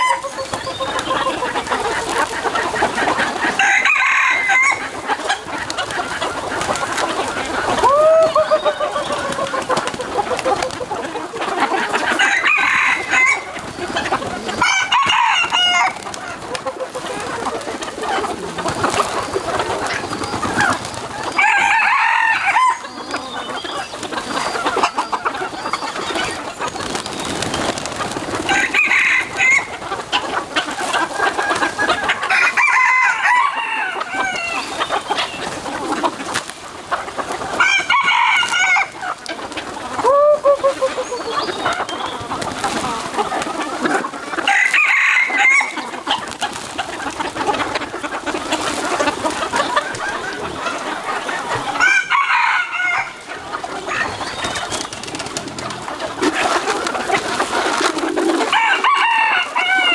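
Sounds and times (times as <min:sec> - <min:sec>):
chickens clucking: 0:00.0 - 0:59.9
rooster crowing: 0:03.6 - 0:04.9, 0:07.8 - 0:09.0, 0:12.2 - 0:13.5, 0:21.3 - 0:22.9, 0:28.5 - 0:29.7, 0:32.3 - 0:34.6, 0:44.5 - 0:45.8, 0:51.8 - 0:53.2, 0:58.5 - 0:59.9.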